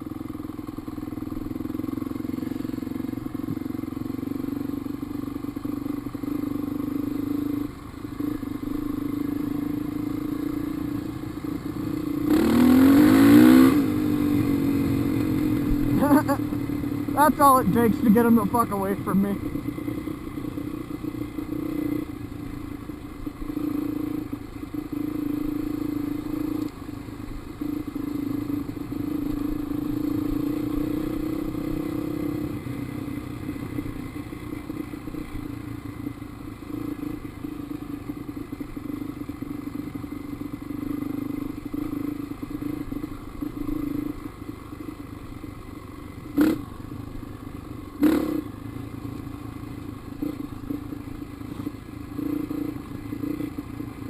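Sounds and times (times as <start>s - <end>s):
dirt bike engine revving: 11.9s - 19.8s, 46.3s - 46.7s, 48.0s - 48.6s.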